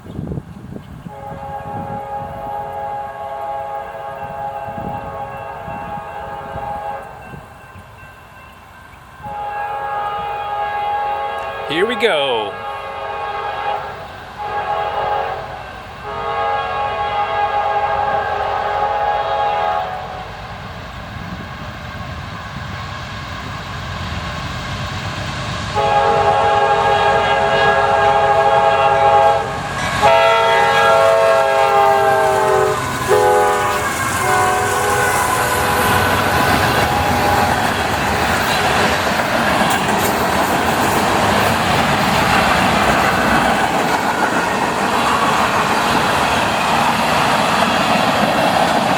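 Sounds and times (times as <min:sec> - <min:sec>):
freight train rumbling past: 0:00.0 - 0:48.9
train air horn blasts: 0:01.1 - 0:07.3, 0:09.2 - 0:20.3, 0:25.8 - 0:37.6
wheel clatter on rails: 0:36.3 - 0:48.9.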